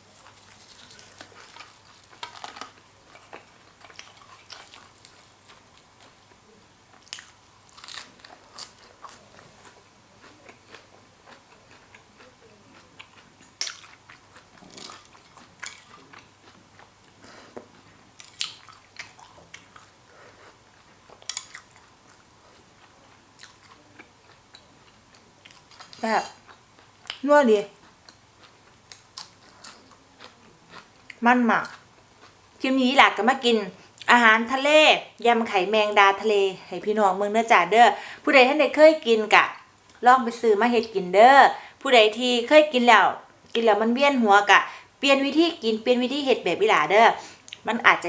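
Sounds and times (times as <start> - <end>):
person chewing crunchy food: 0.1 - 27.2, 27.8 - 32.4.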